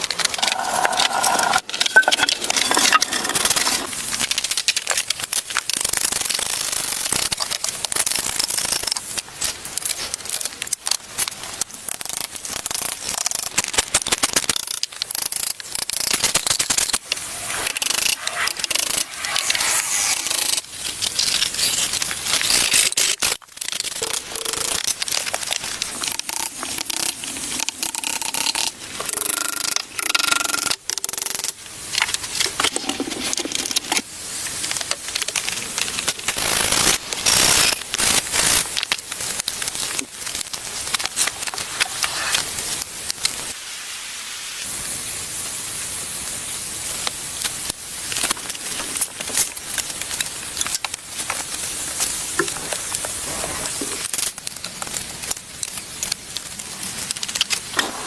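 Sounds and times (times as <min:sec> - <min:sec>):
wood being scraped and rubbed: 0:00.0 - 0:04.3, 0:16.1 - 0:22.0, 0:41.6 - 0:42.6
steady hiss: 0:15.1 - 0:30.6, 0:31.5 - 0:54.1.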